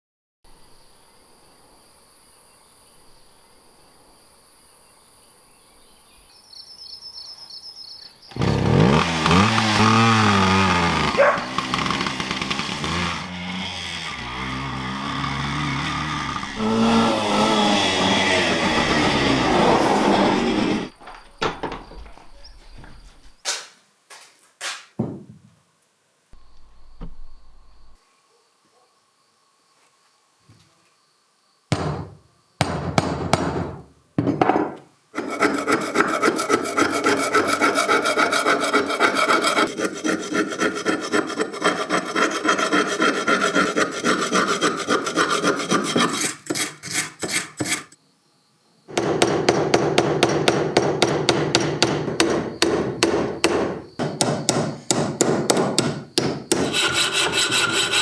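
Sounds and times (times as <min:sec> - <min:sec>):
hand tool scraping back and forth: 0:08.3 - 0:23.4, 0:35.2 - 0:48.0, 0:48.9 - 0:58.0
knocks: 0:21.0 - 0:23.0, 0:48.9 - 0:57.5.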